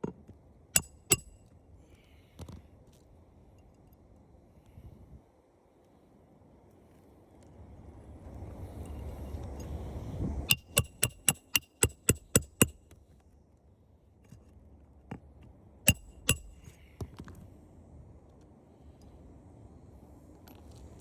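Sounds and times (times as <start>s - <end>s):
hammer striking nails: 0.8s - 1.3s, 10.5s - 12.8s, 15.9s - 16.7s.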